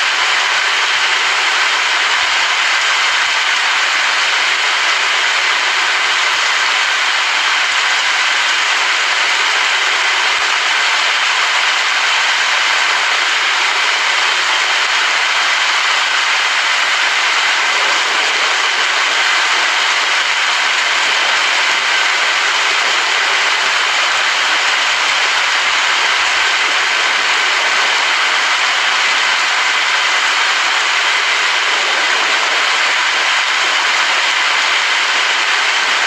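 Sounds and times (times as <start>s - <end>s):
heavy rain: 0.0s - 36.0s.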